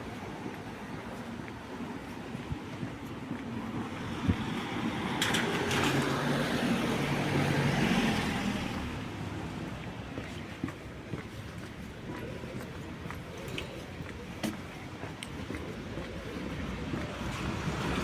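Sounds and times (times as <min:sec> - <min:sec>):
car passing on wet street: 0:03.5 - 0:11.0, 0:15.8 - 0:18.0.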